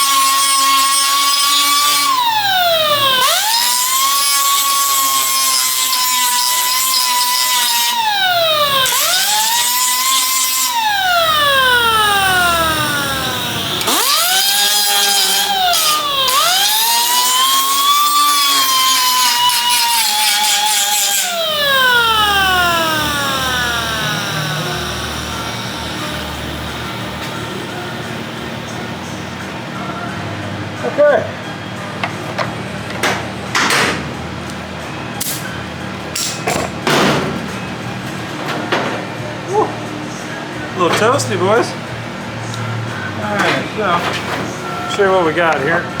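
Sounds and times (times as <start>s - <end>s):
power grinder grinding metal: 0.0s - 29.8s.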